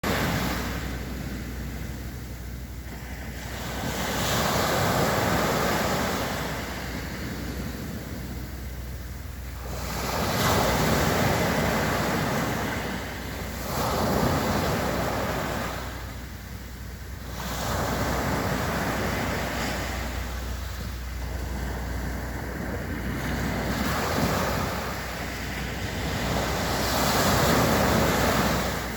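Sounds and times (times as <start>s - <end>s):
sea waves breaking on beach: 0.0s - 28.9s
wind rumble on microphone: 0.0s - 28.9s.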